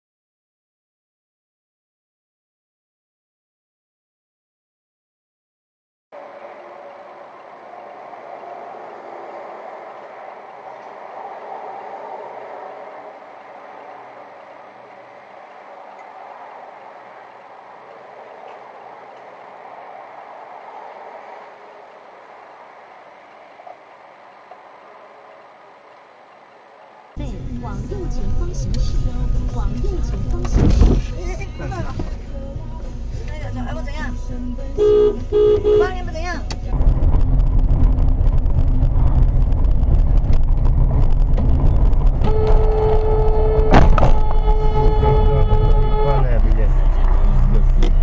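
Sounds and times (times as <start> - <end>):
car road and engine noise: 6.2 - 48.0
car horn held note: 34.8 - 35.9, 42.3 - 46.4.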